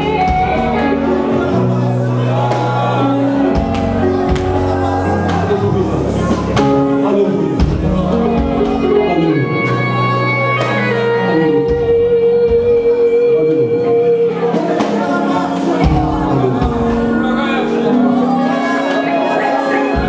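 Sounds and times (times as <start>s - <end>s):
people singing: 0.0s - 12.2s, 13.1s - 20.0s
keyboard chords: 0.0s - 20.0s
drum hits: 3.5s - 6.9s, 7.6s - 9.0s, 14.5s - 17.8s.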